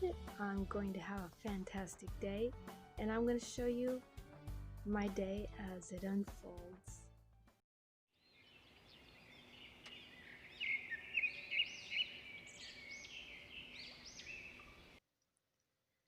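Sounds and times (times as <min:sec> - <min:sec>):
songbirds singing: 0:08.2 - 0:15.0.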